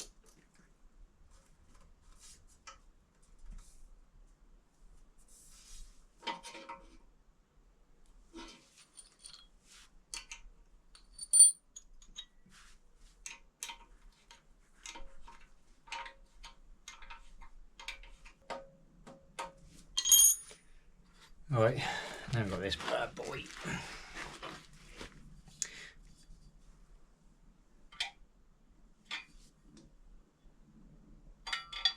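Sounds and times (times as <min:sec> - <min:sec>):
metal tools clicking and clinking: 0:09.0 - 0:09.5, 0:10.1 - 0:12.4, 0:20.0 - 0:20.6, 0:31.4 - 0:31.9.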